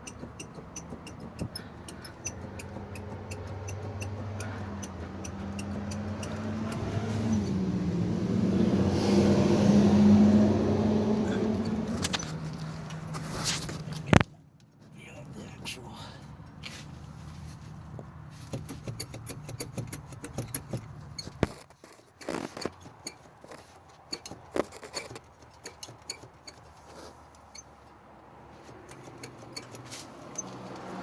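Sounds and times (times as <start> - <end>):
wheel hub clicks and knocks: 0.0 - 7.6, 17.9 - 28.0, 28.8 - 31.0.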